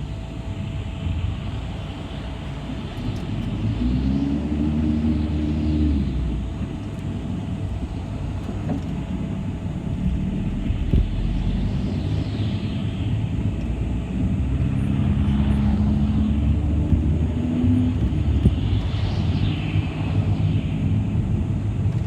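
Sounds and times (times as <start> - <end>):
bus engine and road rumble: 0.0 - 22.0.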